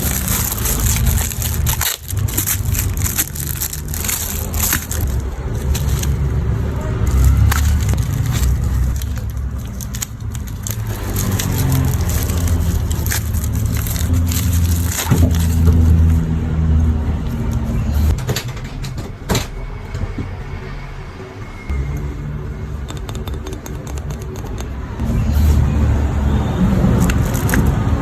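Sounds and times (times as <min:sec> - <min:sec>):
plastic packaging crinkling: 0:00.0 - 0:16.2, 0:26.9 - 0:28.0.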